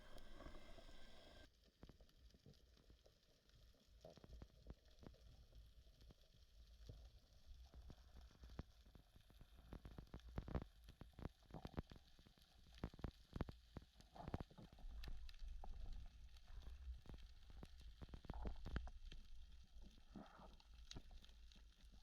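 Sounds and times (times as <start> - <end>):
low underwater rumble: 0.0 - 1.5.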